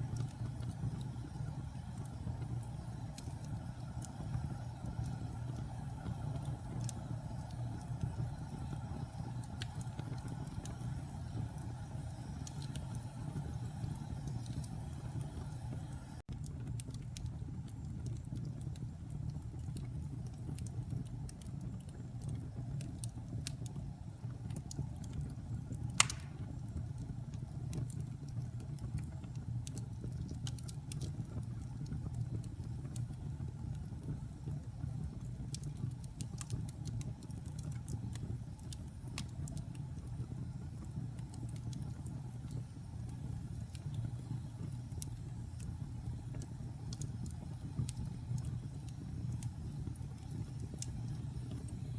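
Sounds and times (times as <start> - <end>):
fire crackling: 0.0 - 51.9
wood fire roaring: 0.0 - 51.9
loud pop from fire: 26.0 - 26.6.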